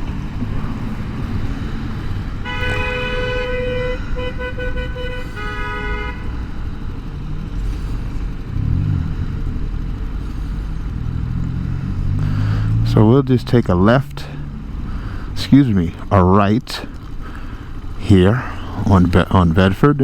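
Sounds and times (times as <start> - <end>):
motorcycle rumble: 0.0 - 20.0
vehicle horn honking: 2.4 - 6.6.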